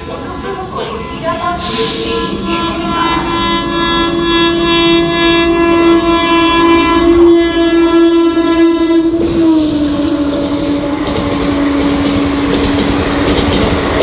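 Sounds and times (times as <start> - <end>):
locomotive horn blast: 0.9 - 14.0
train wheels rattling over rail joints: 9.0 - 14.0.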